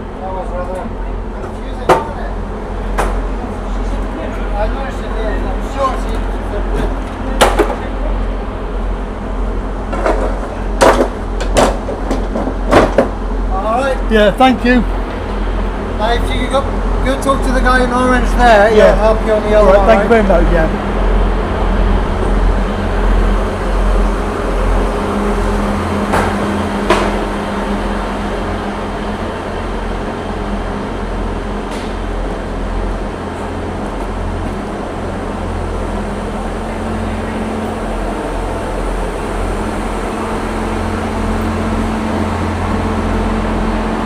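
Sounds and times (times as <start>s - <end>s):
constant hum: 0.0s - 44.0s
low mechanical rumble: 0.0s - 44.0s
sharp knocks: 9.9s - 13.2s, 26.1s - 27.3s.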